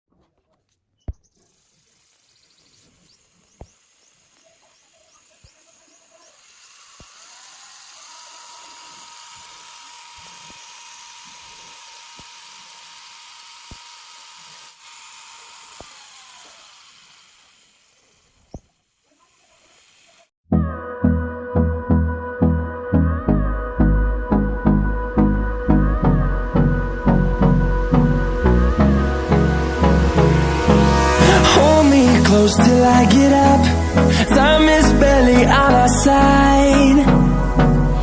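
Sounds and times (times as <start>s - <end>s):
small electric motor whine: 1.0s - 20.3s, 28.9s - 38.0s.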